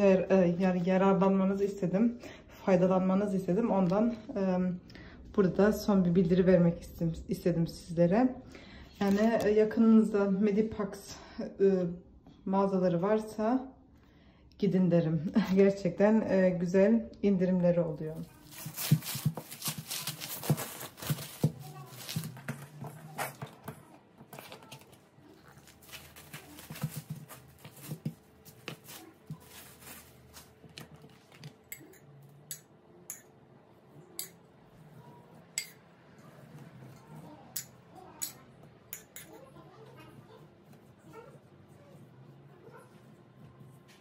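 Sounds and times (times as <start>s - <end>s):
kitchenware clinking: 30.8s - 33.4s, 34.2s - 34.5s, 35.5s - 35.9s, 36.8s - 39.6s.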